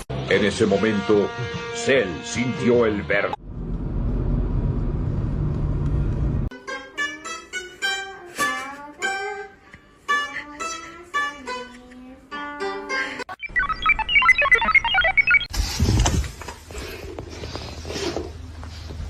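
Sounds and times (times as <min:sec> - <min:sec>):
plucked-string melody: 0:06.5 - 0:13.3.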